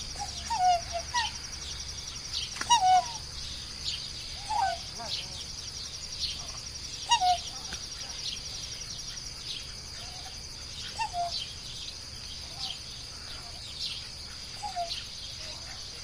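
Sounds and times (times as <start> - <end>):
birds calling: 0.0 - 16.0
insect trill: 0.0 - 16.0.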